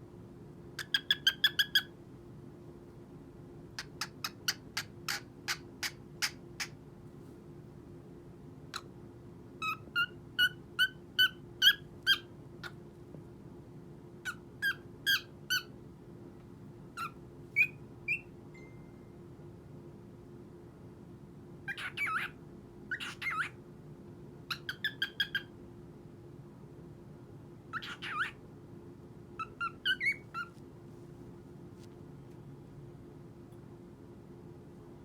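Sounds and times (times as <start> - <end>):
cockatiel chirping: 0.8 - 1.9, 3.8 - 6.8, 9.6 - 12.8, 14.3 - 15.7, 17.0 - 18.3, 21.7 - 23.6, 24.5 - 25.5, 27.7 - 28.4, 29.4 - 30.6
steady low hum: 25.4 - 35.0.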